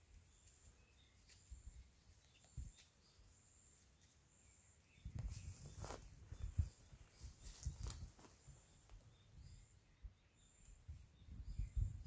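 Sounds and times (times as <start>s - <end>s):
faint high bird chirps: 0.0s - 12.0s
rustling: 5.3s - 6.6s.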